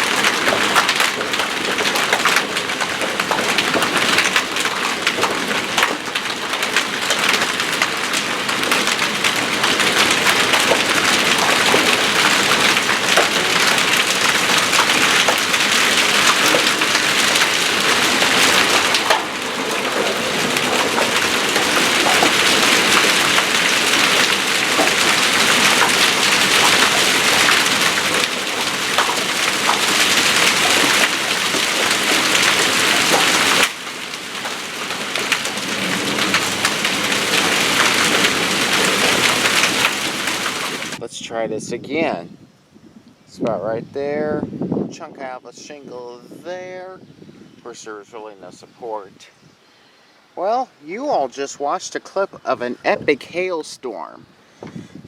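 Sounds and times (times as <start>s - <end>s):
hail clattering: 0.0s - 41.0s
heavy rain pounding: 0.0s - 41.1s.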